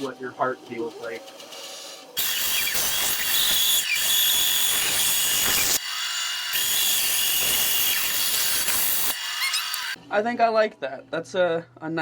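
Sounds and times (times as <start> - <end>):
bandsaw blade rasping through wood: 2.2 - 10.0.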